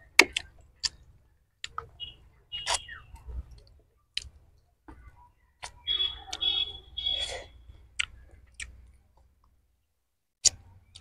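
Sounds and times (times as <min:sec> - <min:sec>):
wet mouth clicks while chewing: 0:00.2 - 0:01.0, 0:03.5 - 0:04.4, 0:08.0 - 0:08.8.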